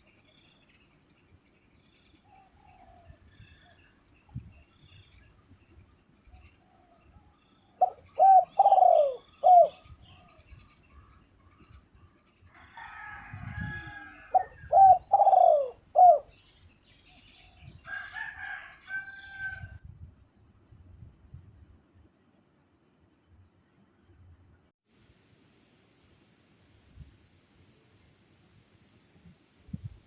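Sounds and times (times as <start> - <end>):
small birds chirping: 0.0 - 12.6
dove cooing: 7.8 - 10.4, 13.8 - 16.3.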